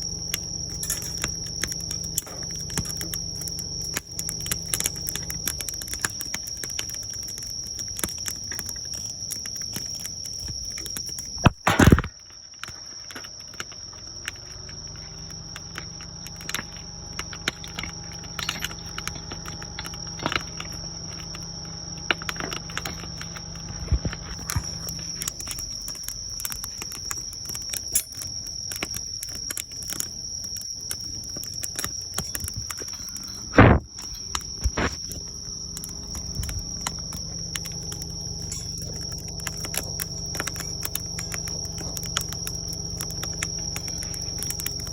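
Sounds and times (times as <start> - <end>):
low steady hum: 0.0 - 7.6, 31.1 - 44.9
insect trill: 0.0 - 44.9
wood fire crackling and popping: 0.0 - 44.9.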